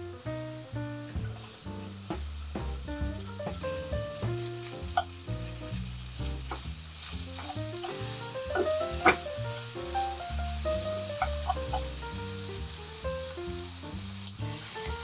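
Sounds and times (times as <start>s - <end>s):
food sizzling in hot fat: 0.0s - 15.0s
background music: 7.4s - 15.0s.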